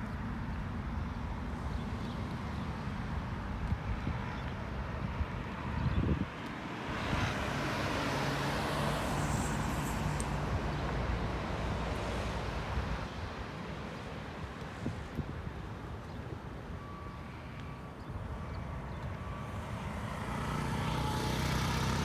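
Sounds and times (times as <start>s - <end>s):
wind buffeting microphone: 3.4s - 7.5s
car passing by: 6.8s - 12.8s, 19.2s - 22.0s.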